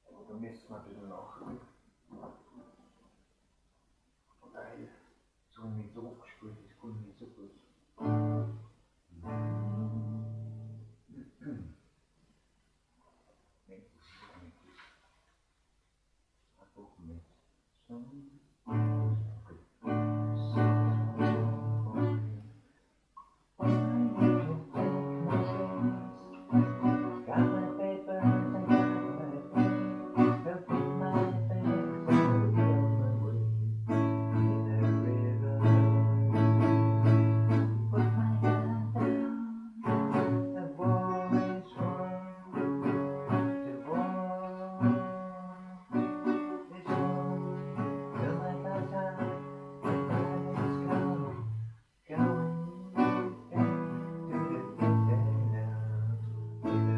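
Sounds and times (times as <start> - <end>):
acoustic guitar playing: 8.0 - 11.6, 18.6 - 22.5, 23.6 - 56.9.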